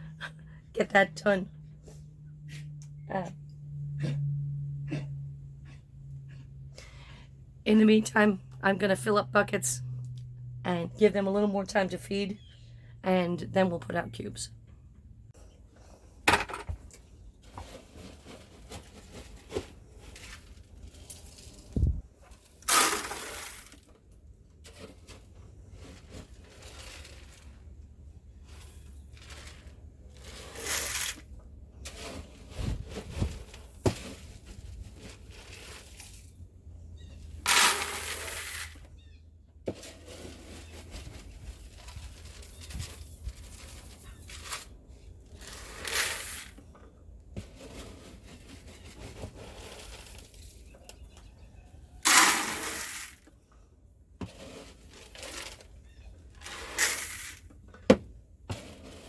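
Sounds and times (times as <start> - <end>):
feed pouring into bucket: 52.0 - 53.3, 56.4 - 57.5.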